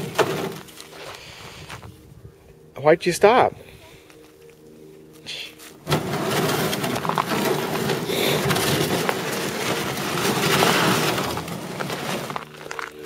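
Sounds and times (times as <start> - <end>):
snow crunching and scraping: 5.5 - 13.0.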